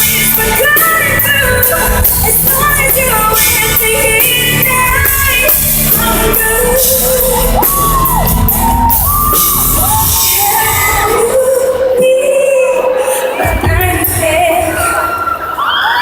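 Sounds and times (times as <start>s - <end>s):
live band playing: 0.0s - 16.0s
crowd shouting and whooping: 6.2s - 12.1s, 12.7s - 16.0s.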